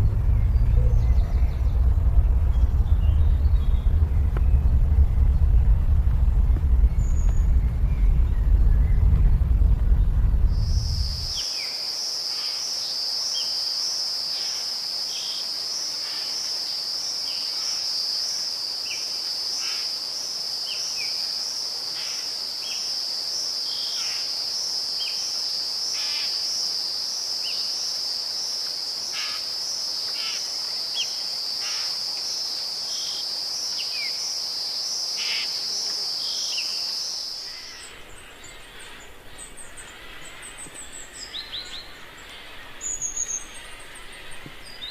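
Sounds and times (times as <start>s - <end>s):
low rumble: 0.0s - 11.4s.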